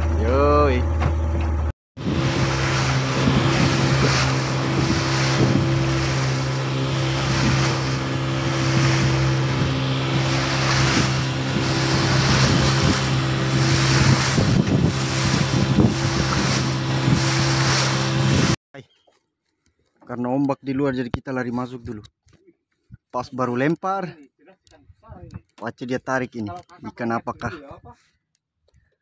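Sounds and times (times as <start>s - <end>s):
boat engine running: 0.0s - 18.6s
water rushing past hull: 2.0s - 18.6s
wind buffeting microphone: 2.0s - 18.6s.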